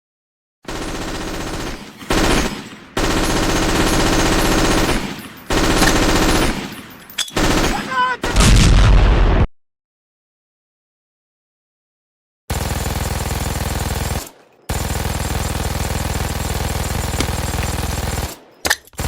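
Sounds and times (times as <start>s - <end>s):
machine-gun fire: 0.7s - 6.8s, 7.4s - 8.9s, 12.5s - 18.6s.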